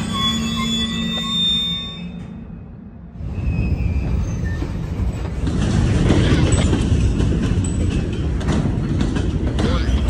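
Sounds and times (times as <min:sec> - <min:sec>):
train wheels rumbling on rails: 0:00.0 - 0:10.0
clicks and clanks: 0:05.4 - 0:10.0.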